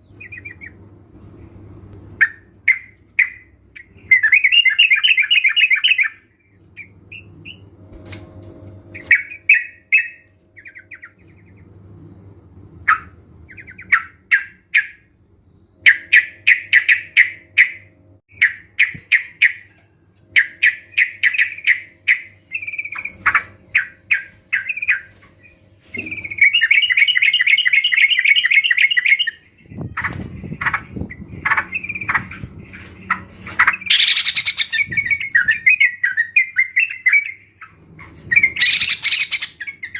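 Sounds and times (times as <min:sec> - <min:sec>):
faint low hum: 0:00.0 - 0:39.9
birds chattering: 0:15.8 - 0:39.9.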